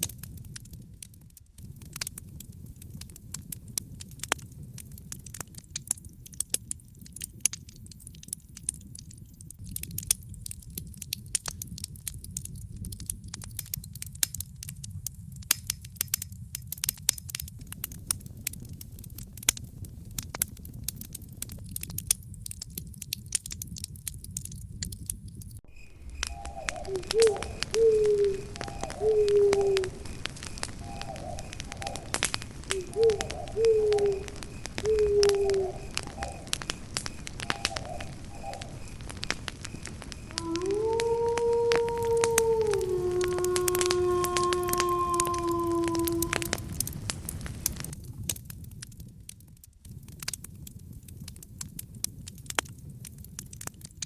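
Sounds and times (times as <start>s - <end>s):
campfire crackling and popping: 0.0s - 54.0s
animal low calls: 26.2s - 36.7s, 40.3s - 47.0s.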